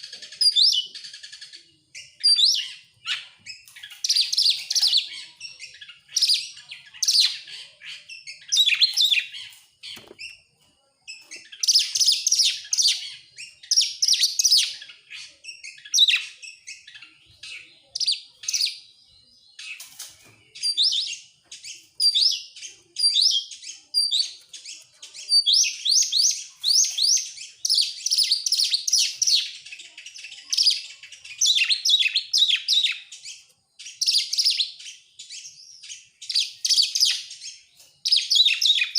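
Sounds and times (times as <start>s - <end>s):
bird singing whistles: 0.0s - 10.4s.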